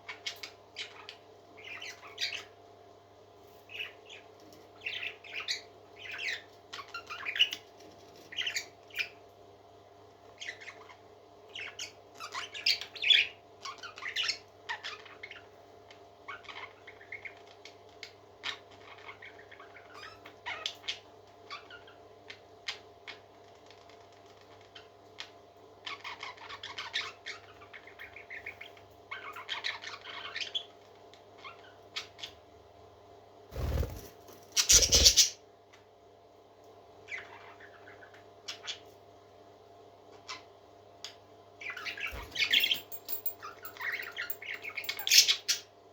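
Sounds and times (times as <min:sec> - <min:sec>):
baby parrot chirping and squawking: 0:33.6 - 0:35.4.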